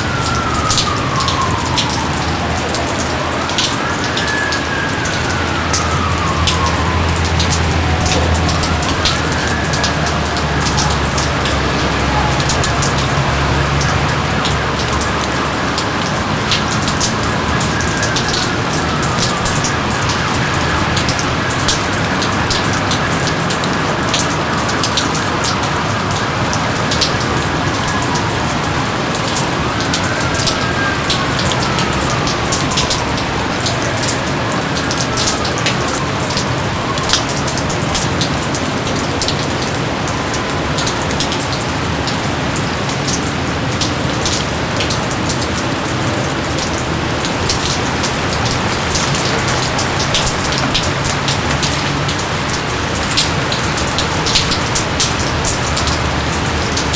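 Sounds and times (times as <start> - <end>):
steady rain with close drops: 0.0 - 56.9.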